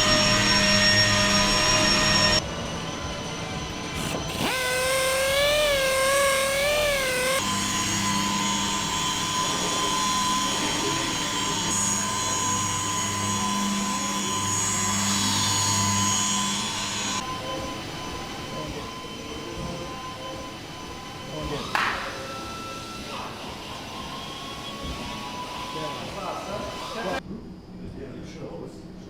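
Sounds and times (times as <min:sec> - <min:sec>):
power tool whining: 0:00.0 - 0:27.2.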